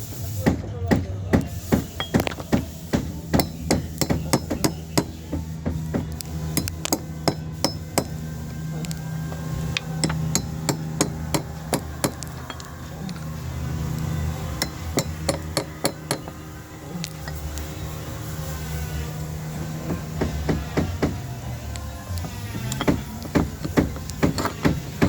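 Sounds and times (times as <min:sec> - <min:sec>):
mallet tapping caulking iron: 0:00.4 - 0:08.2, 0:14.6 - 0:16.4, 0:22.2 - 0:25.0
low hum: 0:01.9 - 0:25.0.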